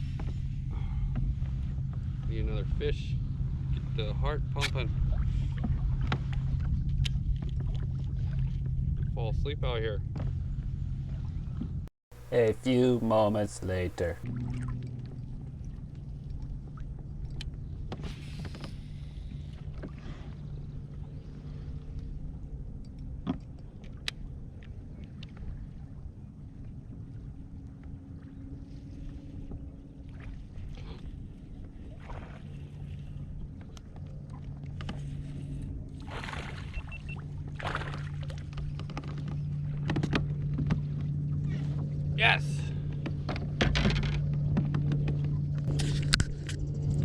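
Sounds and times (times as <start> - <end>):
steady low hum: 10.0 - 14.2, 26.7 - 47.0.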